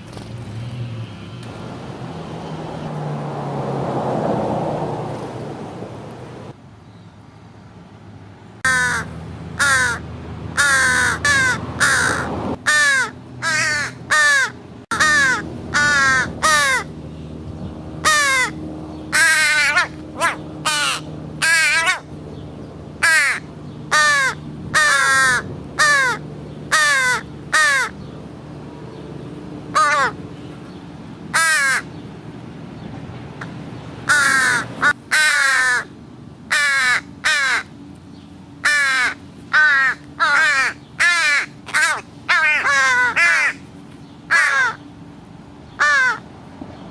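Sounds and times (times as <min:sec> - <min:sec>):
crows cawing: 0:08.6 - 0:10.0, 0:10.6 - 0:16.9, 0:18.0 - 0:22.1, 0:23.0 - 0:28.0, 0:29.7 - 0:30.2, 0:31.3 - 0:32.0, 0:34.0 - 0:37.7, 0:38.6 - 0:43.6, 0:44.3 - 0:44.9, 0:45.8 - 0:46.2.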